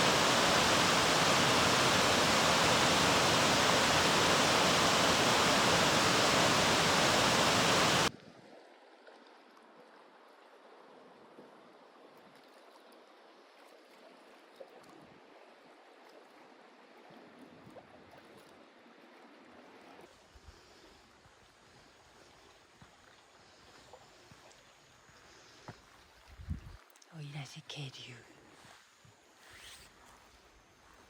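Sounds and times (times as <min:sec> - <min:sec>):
faint hiss: 0:00.0 - 0:08.1
mountain stream rushing: 0:00.0 - 0:08.1.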